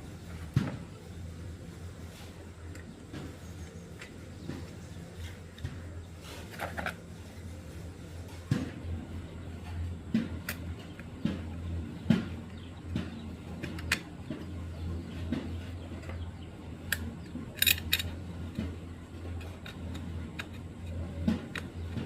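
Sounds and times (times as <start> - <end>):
steady low hum: 0.0 - 22.0
metal tools clinking: 17.6 - 18.2.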